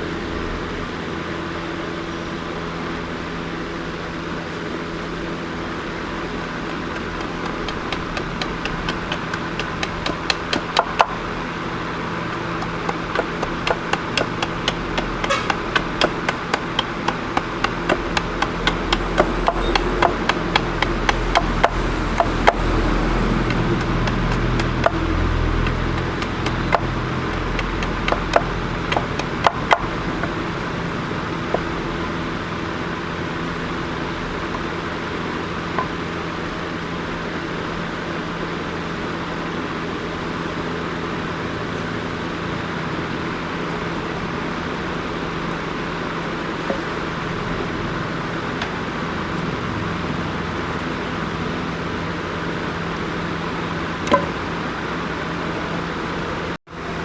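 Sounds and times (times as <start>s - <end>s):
machine motor humming: 6.3s - 32.4s
sharp knocks: 6.9s - 11.2s, 12.3s - 30.4s.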